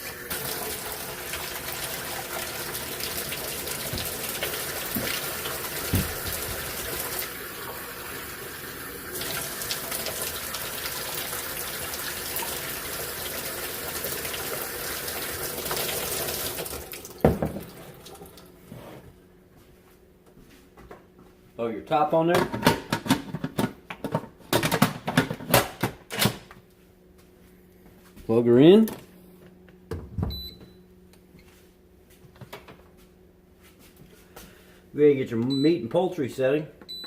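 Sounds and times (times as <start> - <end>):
water running from tap: 0.0 - 18.5.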